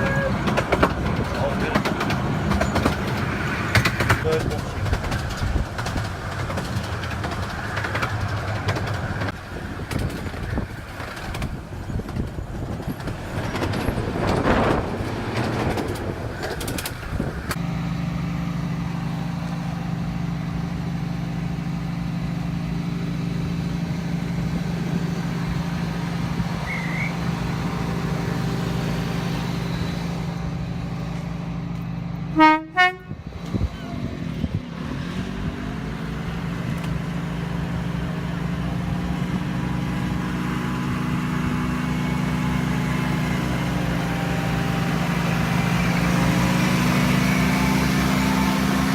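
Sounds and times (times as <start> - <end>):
wheels clicking on track: 0.0 - 32.3, 36.2 - 48.9
miniature train rumbling: 0.0 - 48.9
train horn toot: 32.3 - 33.2.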